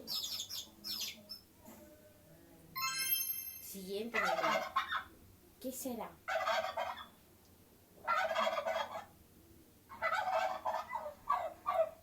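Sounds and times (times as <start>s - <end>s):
turkey gobbling: 4.2s - 5.1s, 6.3s - 7.2s, 8.0s - 9.1s, 9.9s - 11.9s.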